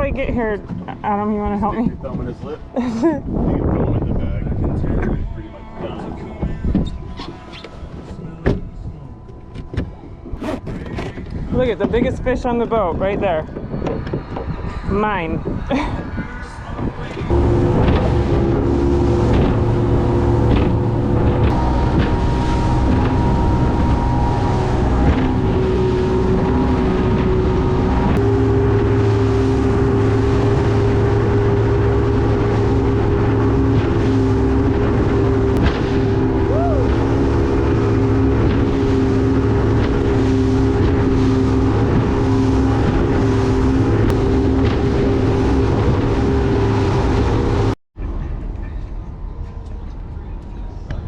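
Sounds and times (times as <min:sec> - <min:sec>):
boat engine running: 0:00.0 - 0:51.0
wind noise on microphone: 0:00.0 - 0:51.0.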